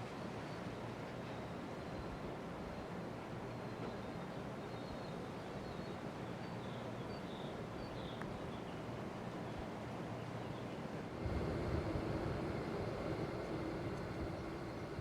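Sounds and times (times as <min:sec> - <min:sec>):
small tick: 0:08.2 - 0:08.4
ceiling fan whooshing: 0:11.0 - 0:15.0.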